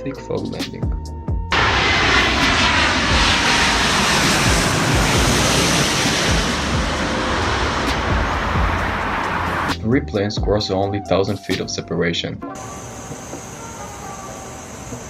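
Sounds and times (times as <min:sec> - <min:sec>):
jet engines running: 0:01.4 - 0:09.8, 0:12.5 - 0:15.0.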